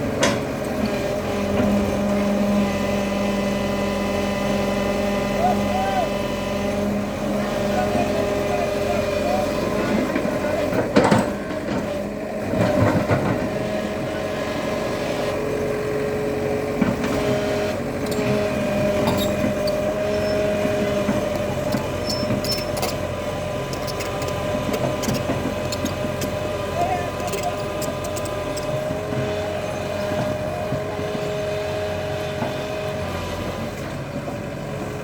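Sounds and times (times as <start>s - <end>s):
excavator diesel engine running: 0.0s - 35.0s
short clatter: 18.0s - 29.0s.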